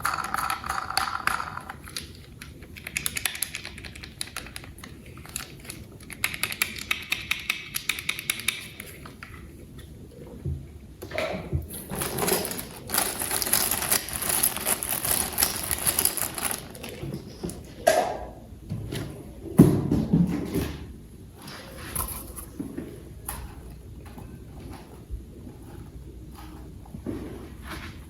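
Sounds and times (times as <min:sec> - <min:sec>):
packaging rustling and crackling: 0:11.9 - 0:17.7.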